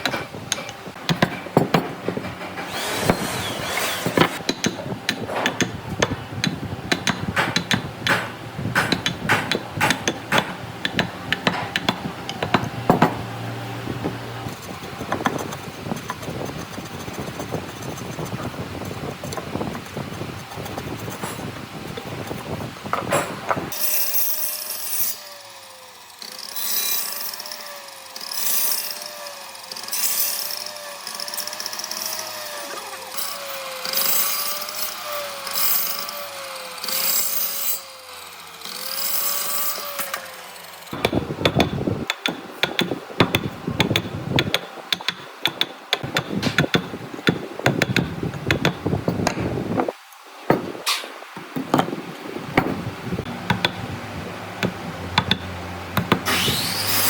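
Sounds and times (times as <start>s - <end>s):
power tool motor under load: 2.6s - 4.4s, 56.0s - 57.0s
wood cutting hiss: 2.7s - 4.4s, 56.0s - 57.0s.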